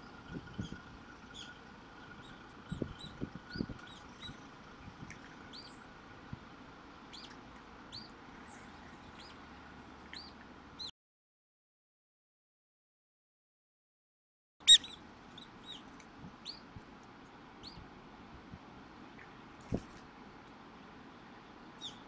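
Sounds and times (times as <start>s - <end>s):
small birds chirping: 0.0s - 6.4s, 7.1s - 10.9s, 14.7s - 17.9s, 21.1s - 22.0s.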